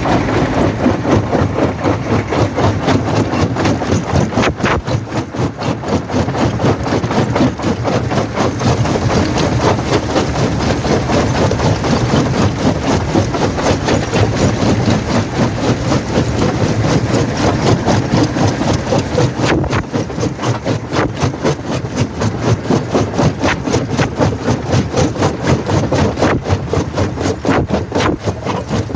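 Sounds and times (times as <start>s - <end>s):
jaw crusher rumbling: 0.0s - 28.9s.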